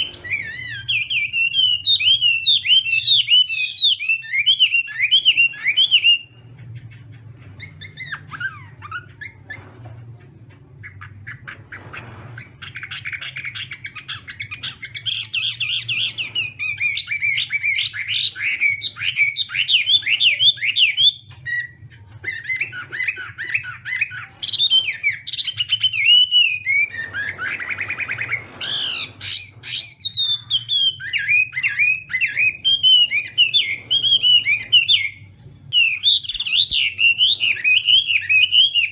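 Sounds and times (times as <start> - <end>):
steady low hum: 5.3 - 20.4.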